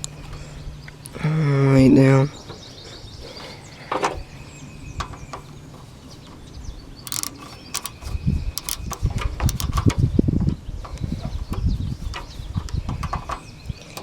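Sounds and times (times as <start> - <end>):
hand tools clicking on metal: 7.1 - 10.0.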